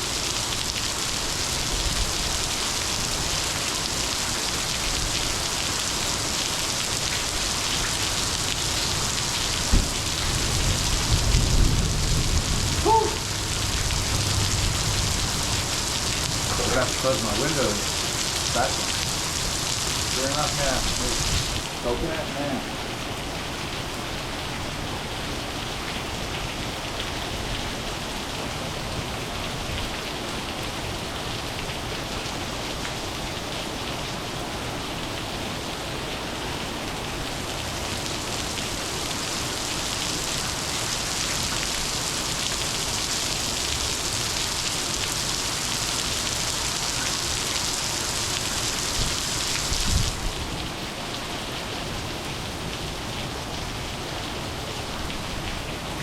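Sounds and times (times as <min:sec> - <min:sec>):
heavy rain falling: 0:00.0 - 0:56.0
low thumps: 0:09.7 - 0:10.1.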